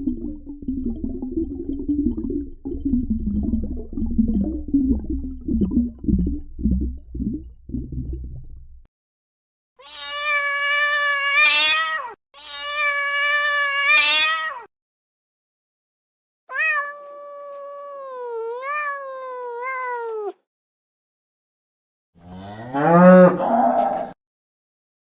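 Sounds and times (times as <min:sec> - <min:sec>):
cat meowing: 0:09.8 - 0:14.7, 0:16.5 - 0:20.4.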